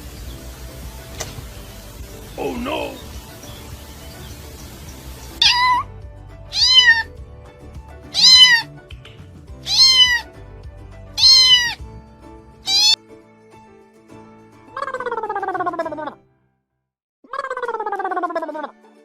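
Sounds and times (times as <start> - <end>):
faint background music: 0.0 - 16.2
cat meowing: 5.4 - 5.8, 6.5 - 7.1, 8.1 - 8.7, 9.7 - 10.3, 11.2 - 11.8, 12.7 - 13.0.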